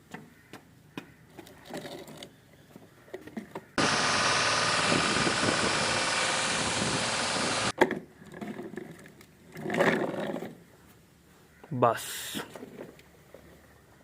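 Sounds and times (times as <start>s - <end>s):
engine running: 3.8s - 7.7s.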